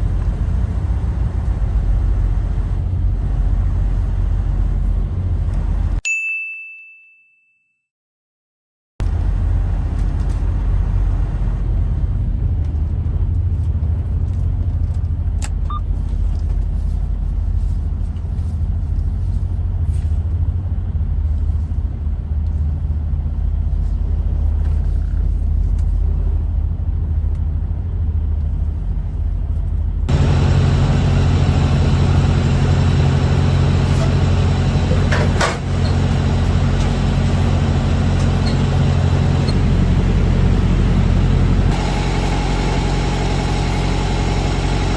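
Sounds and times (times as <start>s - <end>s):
truck engine and road rumble: 0.0s - 6.0s, 9.0s - 44.9s.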